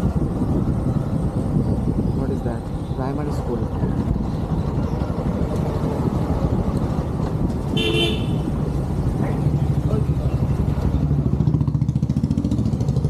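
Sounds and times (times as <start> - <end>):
motorcycle engine and road noise: 0.0 - 13.0
vehicle horn toot: 7.7 - 8.5.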